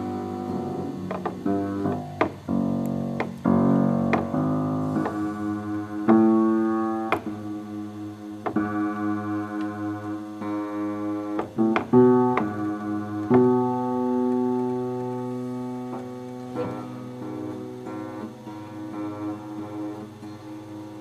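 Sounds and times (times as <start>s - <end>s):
electric keyboard chords: 0.0s - 21.0s.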